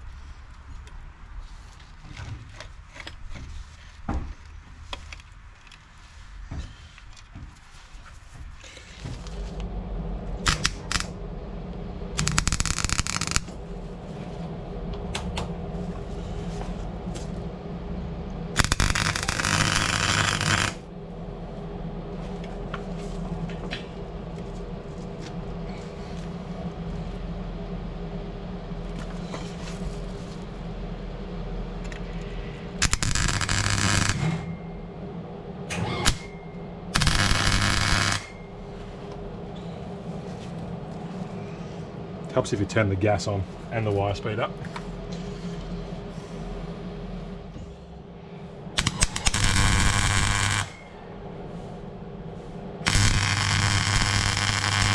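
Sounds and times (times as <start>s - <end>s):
welder crackling bursts: 10.4s - 11.2s, 12.2s - 13.8s, 18.6s - 20.9s, 32.8s - 34.5s, 35.7s - 36.3s, 37.0s - 38.4s, 48.8s - 50.8s, 52.8s - 54.9s.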